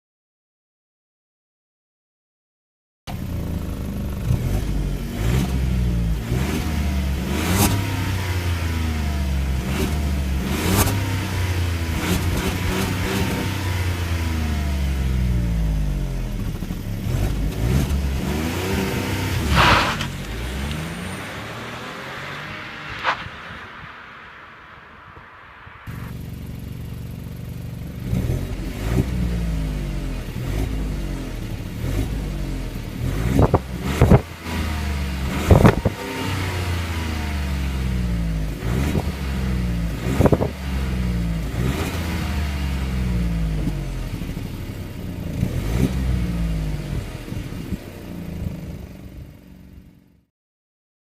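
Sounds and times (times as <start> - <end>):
car engine revving: 3.2 - 48.4.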